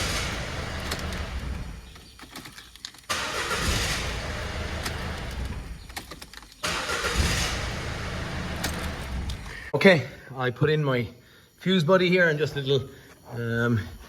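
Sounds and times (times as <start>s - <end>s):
diesel engine starting and running: 0.0s - 9.7s.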